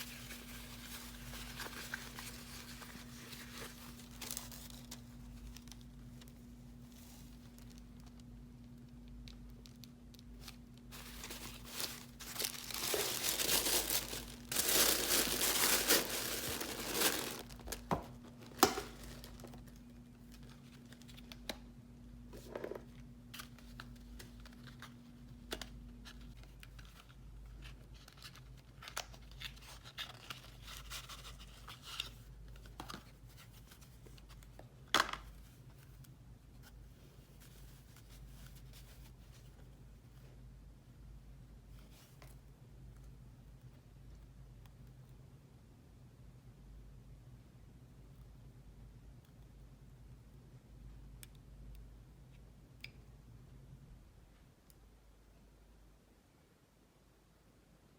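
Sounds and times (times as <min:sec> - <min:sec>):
wrapping crinkling and tearing: 0:00.0 - 0:08.3, 0:09.5 - 0:21.5.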